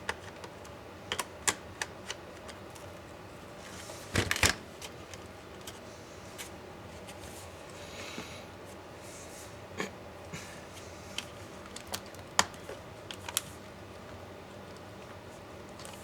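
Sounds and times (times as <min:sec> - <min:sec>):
laptop parts clicking and tapping: 0:00.1 - 0:02.6.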